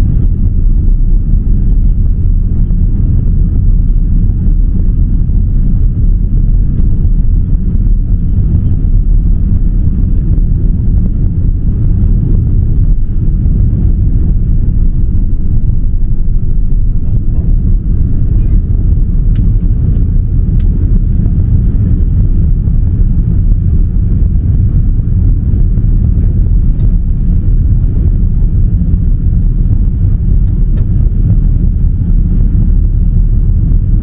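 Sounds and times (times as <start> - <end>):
jet engines rumbling in cabin: 0.0 - 34.0.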